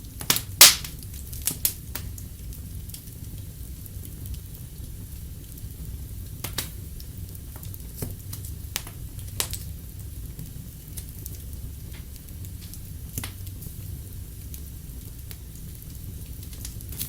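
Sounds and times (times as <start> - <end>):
low rumble of burning fire: 0.0 - 17.0
wood fire crackling: 0.0 - 17.0
sharp pops of fire: 0.1 - 2.2, 6.4 - 9.7, 10.4 - 13.6.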